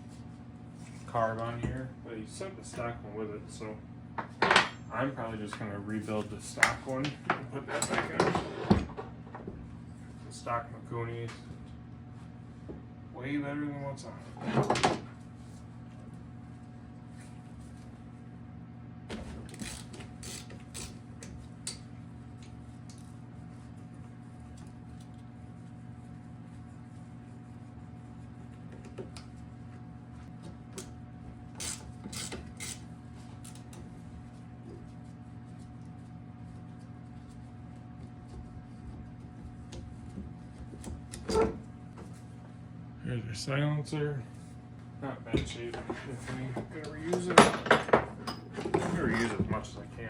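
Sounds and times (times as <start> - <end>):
steady low hum: 0.0 - 50.0
ratchet wrench clicking: 19.6 - 21.0, 31.6 - 32.8.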